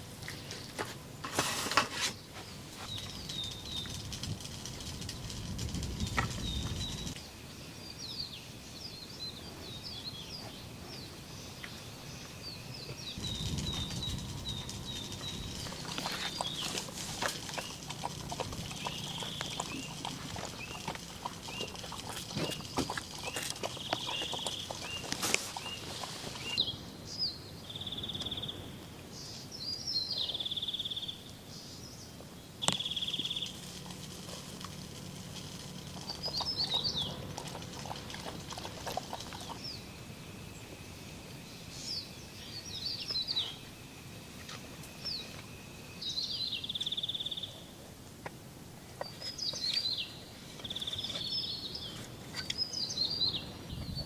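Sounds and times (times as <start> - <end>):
bird chirps: 7.9 - 33.6, 36.0 - 37.3.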